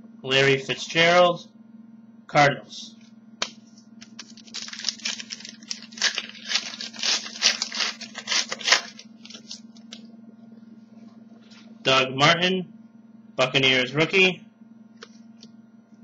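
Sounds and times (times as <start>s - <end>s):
steady low hum: 0.0s - 16.0s
foil wrapper tearing and crinkling: 4.0s - 10.0s.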